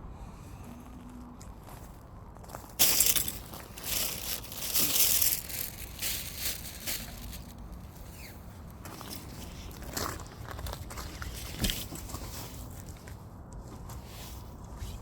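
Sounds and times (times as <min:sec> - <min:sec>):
low background noise: 0:00.0 - 0:15.0
firewood crunching and crackling: 0:02.7 - 0:13.0.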